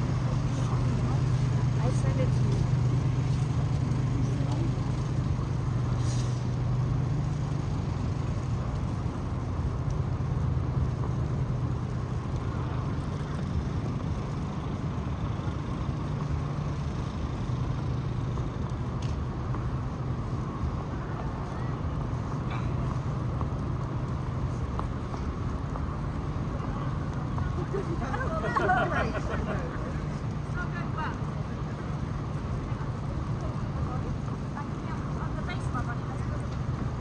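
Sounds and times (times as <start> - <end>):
motor vehicle engine hum: 0.0 - 37.0
road noise: 0.0 - 37.0.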